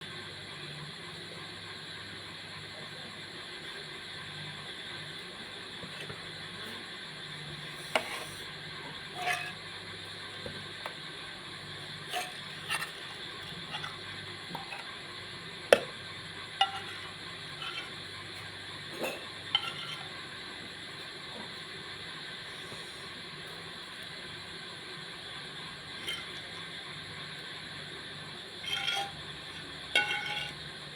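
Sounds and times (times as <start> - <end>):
steady low hum: 1.6 - 30.9.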